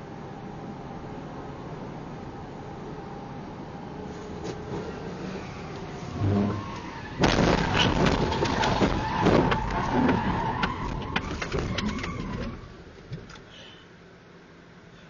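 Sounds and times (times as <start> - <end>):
steady squeal: 4.8 - 12.7
car crash bang: 6.1 - 12.5
clattering and scraping: 6.1 - 13.4.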